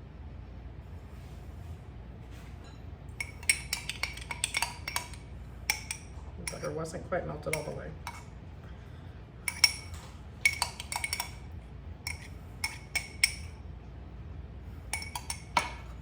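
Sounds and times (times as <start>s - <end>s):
fork clinking against bowl: 3.2s - 6.8s, 7.5s - 8.3s, 9.5s - 13.6s, 14.9s - 16.0s.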